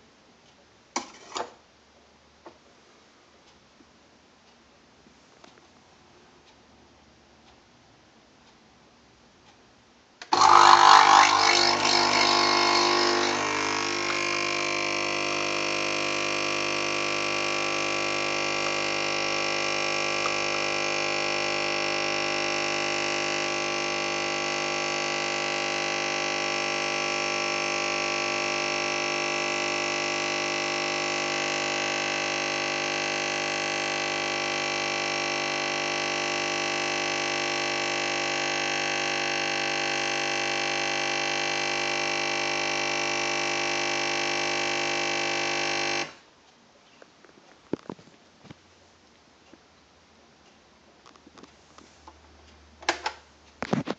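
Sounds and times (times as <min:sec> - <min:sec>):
coffee machine pump buzzing: 0:10.2 - 0:46.2.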